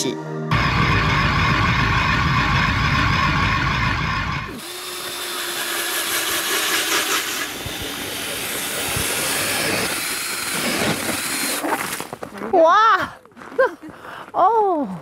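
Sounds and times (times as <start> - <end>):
background music: 0.0 - 1.5
ice auger whirring: 0.5 - 12.3.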